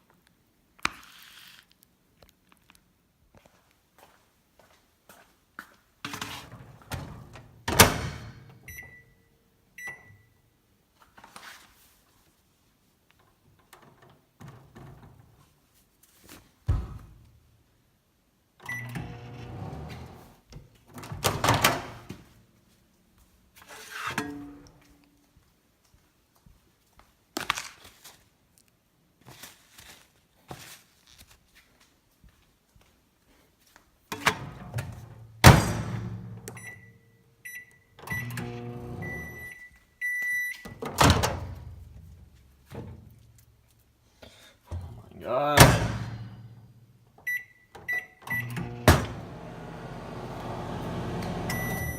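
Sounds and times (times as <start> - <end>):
keypad beeps: 8.7 - 9.2, 36.5 - 38.4, 39.0 - 40.7, 47.3 - 48.6, 51.5 - 51.9
microwave oven hum: 18.7 - 20.2, 38.1 - 39.4, 48.4 - 51.9
long beep: 51.5 - 51.9.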